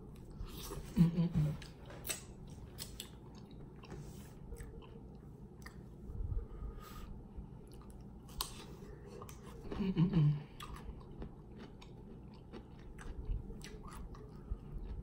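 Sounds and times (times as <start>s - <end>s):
wet chewing and crunching: 1.6s - 6.0s, 7.6s - 9.9s, 10.5s - 15.0s.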